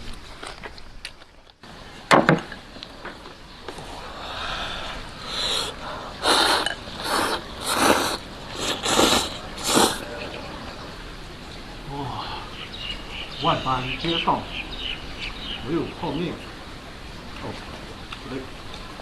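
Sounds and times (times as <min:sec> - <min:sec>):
sucking and sniffing: 0:03.7 - 0:10.3
man eating noisily: 0:03.8 - 0:10.5.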